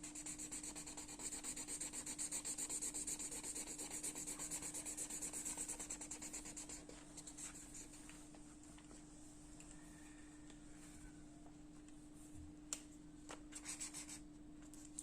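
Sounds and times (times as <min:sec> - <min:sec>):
drawing tool rubbing on paper: 0:00.0 - 0:08.0.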